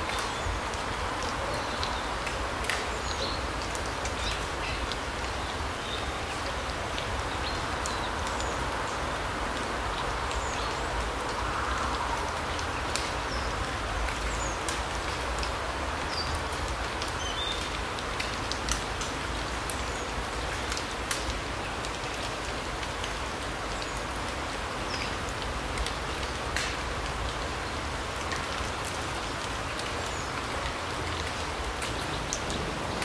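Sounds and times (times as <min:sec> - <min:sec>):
light ticks: 0:00.0 - 0:02.9, 0:09.5 - 0:13.4, 0:14.0 - 0:27.5.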